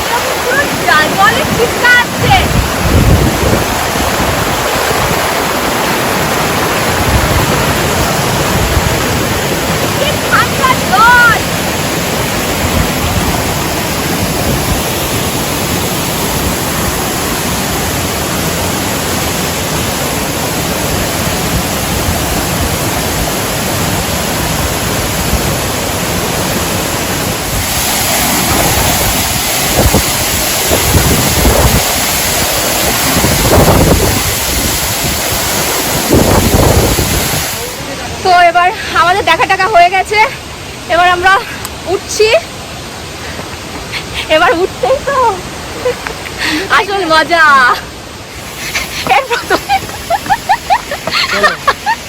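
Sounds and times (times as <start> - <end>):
wind buffeting microphone: 0.0 - 38.5
waterfall rushing roar: 0.0 - 52.0.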